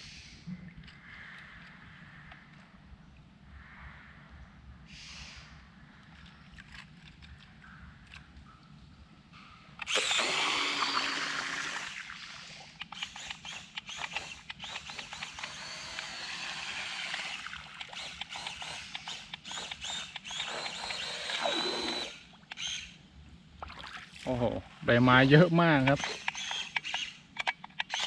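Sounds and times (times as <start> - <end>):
small electric motor whining: 9.8 - 23.0, 25.1 - 28.0.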